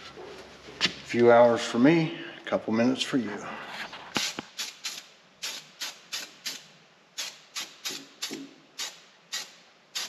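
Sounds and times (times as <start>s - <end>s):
short hissing strokes: 3.6s - 10.0s.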